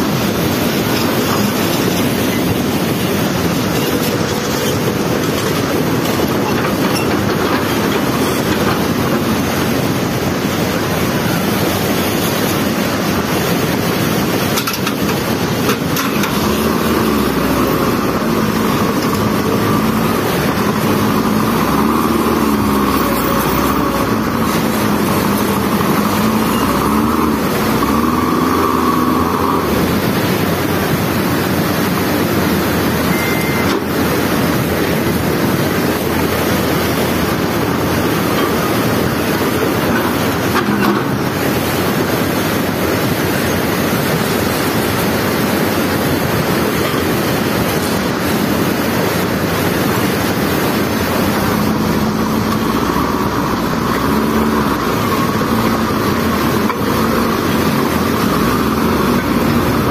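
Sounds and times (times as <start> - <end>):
floodwater rushing: 0.0 - 59.9.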